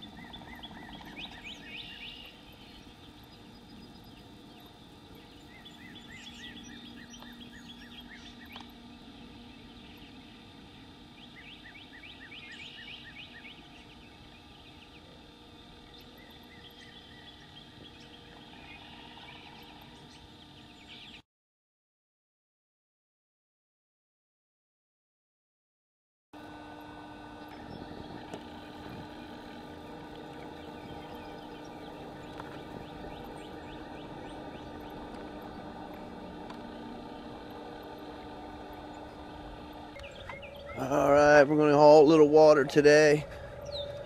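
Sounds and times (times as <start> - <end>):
birds singing: 0.0 - 21.2, 26.4 - 44.0
steady low background: 26.4 - 44.0.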